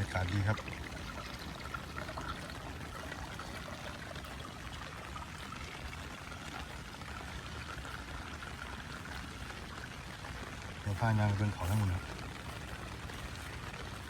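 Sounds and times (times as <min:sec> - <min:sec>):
running water: 0:00.0 - 0:14.0
falling rain: 0:05.0 - 0:14.0.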